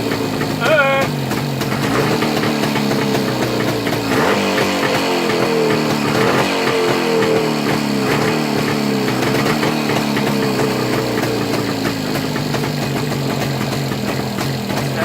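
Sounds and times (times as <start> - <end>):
two-stroke engine running: 0.0 - 15.0.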